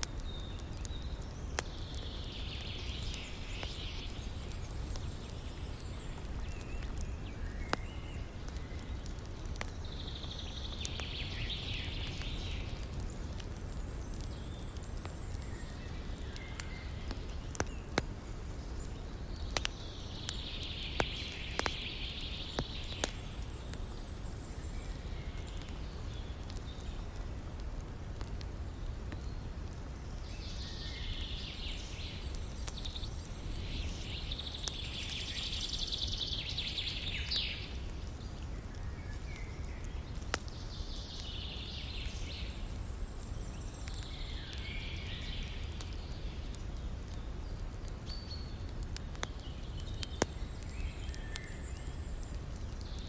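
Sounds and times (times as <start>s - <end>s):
campfire crackling and popping: 0.0s - 53.0s
birds chirping: 0.1s - 27.0s.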